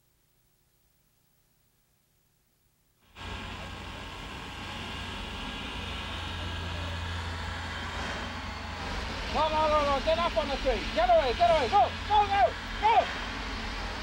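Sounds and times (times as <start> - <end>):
train rumble with deep hum: 3.2 - 14.0.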